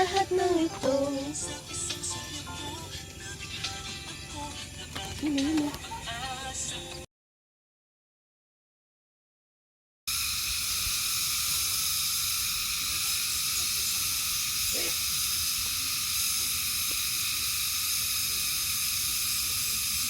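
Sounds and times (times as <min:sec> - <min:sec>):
food sizzling in a pan: 0:10.1 - 0:20.0.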